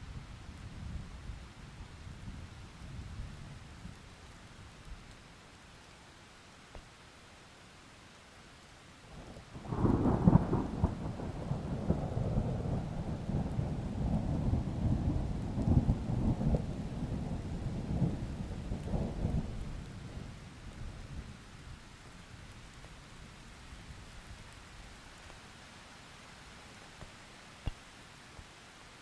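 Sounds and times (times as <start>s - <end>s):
faint steady rain: 0.0s - 29.0s
thunder rumbling: 9.6s - 21.4s.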